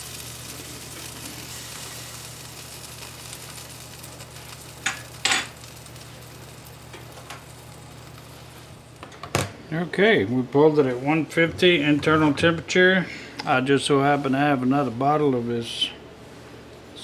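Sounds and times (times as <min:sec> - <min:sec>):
meat sizzling on a grill: 0:00.0 - 0:09.0.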